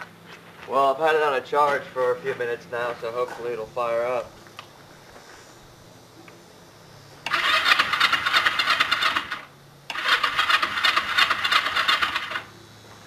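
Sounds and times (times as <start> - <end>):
motorcycle starter cranking engine: 7.2 - 12.5.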